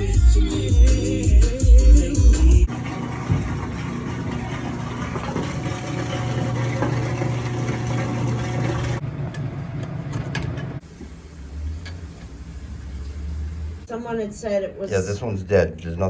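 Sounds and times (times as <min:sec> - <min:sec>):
engine-like mechanical hum: 0:05.7 - 0:14.8.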